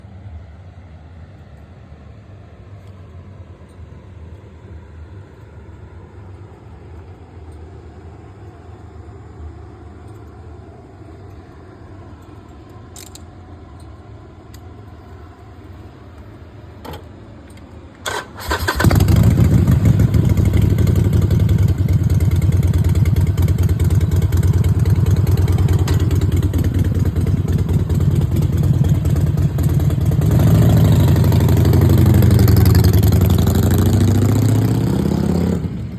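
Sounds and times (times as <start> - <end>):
motorcycle engine starting: 18.0 - 35.9
motorcycle engine idling: 18.1 - 34.5.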